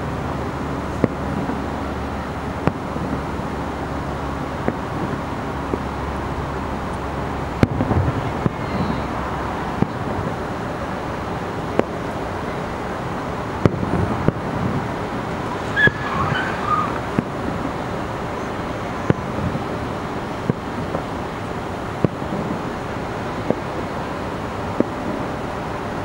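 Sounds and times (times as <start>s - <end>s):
distant firework bursts: 0.0s - 26.0s
low background rumble: 0.0s - 26.0s.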